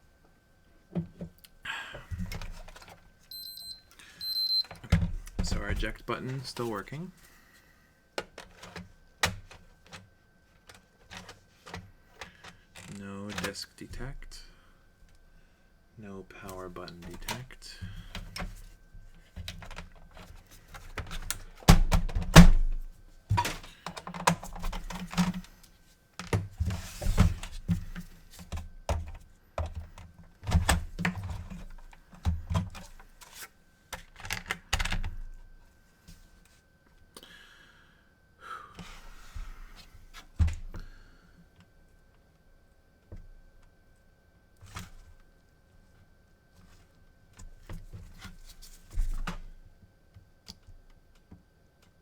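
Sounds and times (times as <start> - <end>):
console parts knocking and clattering: 2.1 - 3.0, 4.3 - 7.0, 8.2 - 14.3, 16.9 - 25.6, 26.2 - 35.4
faint steady high tone: 3.3 - 4.8.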